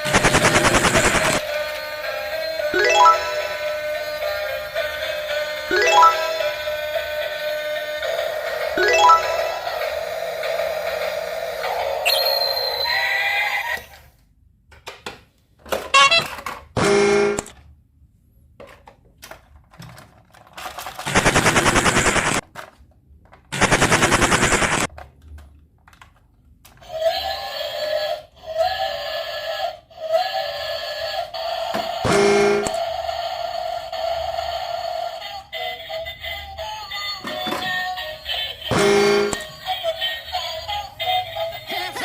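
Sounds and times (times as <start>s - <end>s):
rapid rattling bursts: 0.0s - 1.4s, 20.8s - 22.4s, 23.5s - 24.9s
repeated tone figure: 2.8s - 3.6s, 16.0s - 17.4s
short electronic tones: 16.0s - 17.4s.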